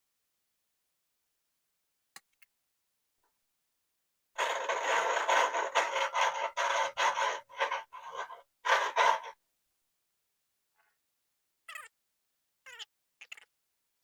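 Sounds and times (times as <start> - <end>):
gritty metal rasping scrape: 4.4 - 9.4.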